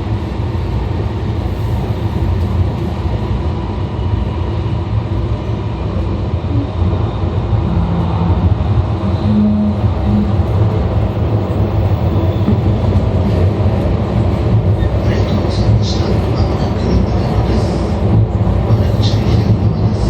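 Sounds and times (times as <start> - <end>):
train wheels rumbling: 0.0 - 20.0
humming tones: 7.6 - 11.1.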